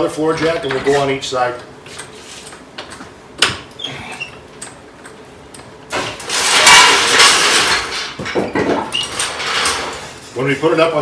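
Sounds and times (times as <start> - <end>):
floor jack rattling over floor: 0.3 - 1.2, 5.9 - 10.2
short metal clanks: 5.9 - 10.4.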